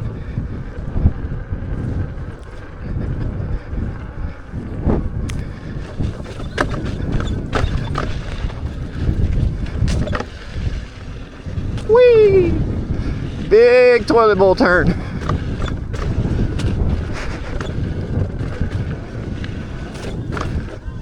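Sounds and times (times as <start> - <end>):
wind rumbling on microphone: 0.0 - 21.0
clicks and knocks from bumpy ride: 4.8 - 12.0, 12.8 - 21.0.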